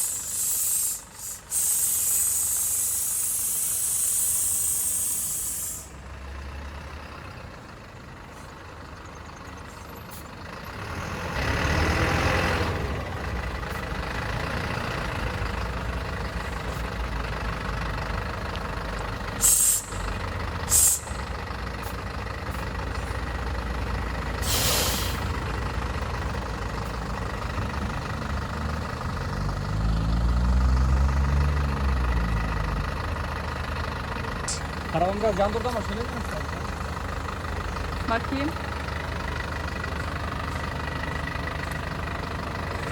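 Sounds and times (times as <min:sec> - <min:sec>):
short sharp hisses: 0:00.0 - 0:05.9, 0:19.4 - 0:20.0, 0:20.7 - 0:21.2, 0:24.4 - 0:25.3
vehicle engine rumbling: 0:00.0 - 0:42.9.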